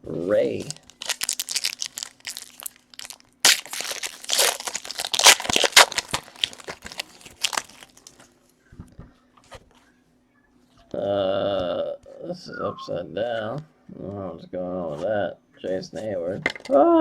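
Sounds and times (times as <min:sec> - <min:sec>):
faint steady hum: 0:00.0 - 0:17.0
wrappers crinkling and tearing: 0:00.5 - 0:08.3.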